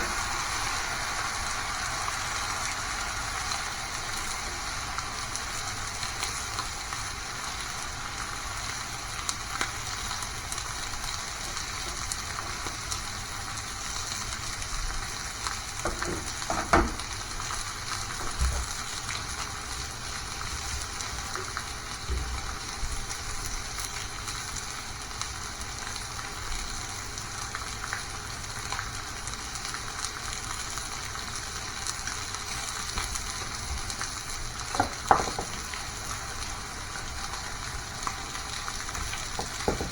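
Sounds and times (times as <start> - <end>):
food sizzling in a frying pan: 0.0 - 39.9
knocks: 15.8 - 17.1, 34.8 - 35.7, 39.4 - 39.9.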